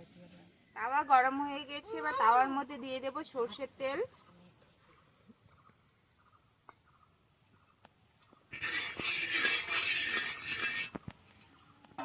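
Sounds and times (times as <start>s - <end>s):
oil sizzling on hot pan: 8.5s - 11.0s.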